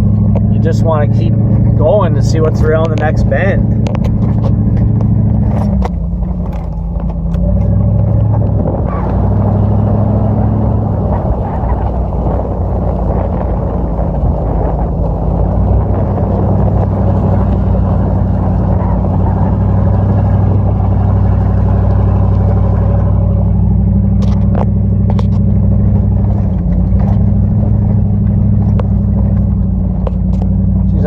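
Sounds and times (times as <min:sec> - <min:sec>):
pickup truck engine running: 0:00.0 - 0:31.0
tyres rumbling on dirt track: 0:00.0 - 0:31.0.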